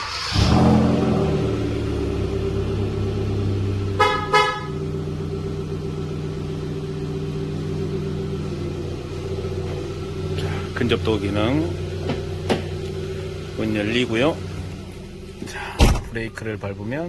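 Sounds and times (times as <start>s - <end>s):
car engine idling: 0.0s - 17.0s
car horn toots: 3.9s - 5.0s.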